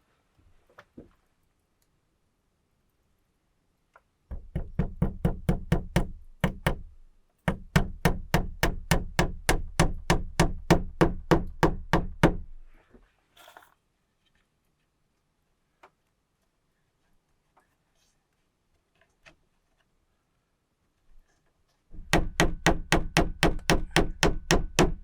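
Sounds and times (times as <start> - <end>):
rapid even knocking: 21.9 - 25.0.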